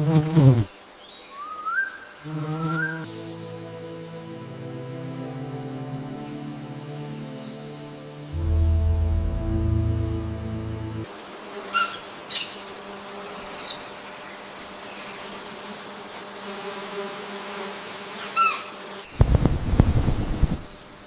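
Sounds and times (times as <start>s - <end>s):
low droning sound: 3.1s - 11.1s
steady buzzing hum: 7.6s - 11.1s.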